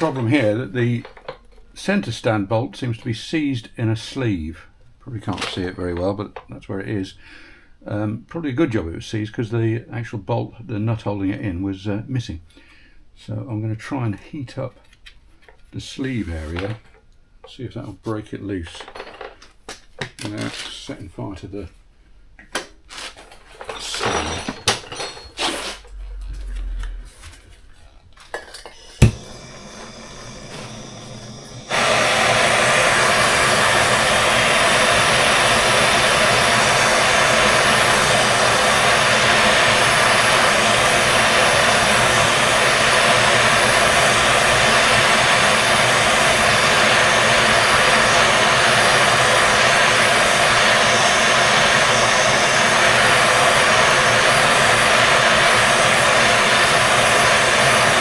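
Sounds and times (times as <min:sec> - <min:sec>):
blowtorch flame hissing: 0:28.7 - 0:58.0.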